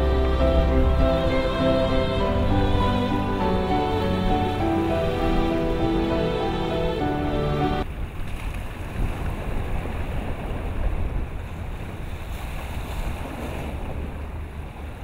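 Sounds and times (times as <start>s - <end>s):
music: 0.0s - 7.8s
water rushing past boat: 0.0s - 15.0s
wind buffeting microphone: 0.0s - 15.0s.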